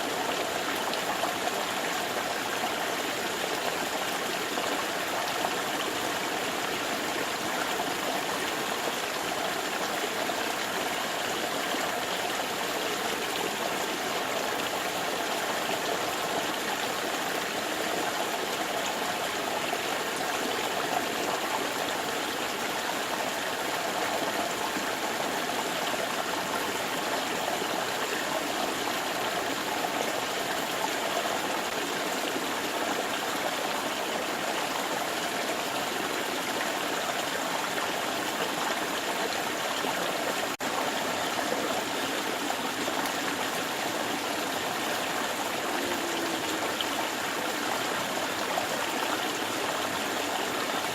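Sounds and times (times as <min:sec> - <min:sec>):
flowing water rushing: 0:00.0 - 0:50.9.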